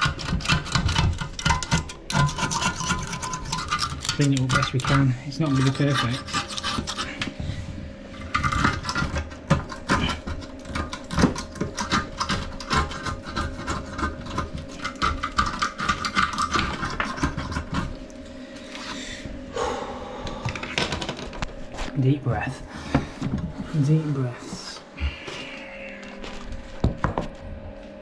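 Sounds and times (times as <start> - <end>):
scraping and rubbing strokes: 0.0 - 9.2.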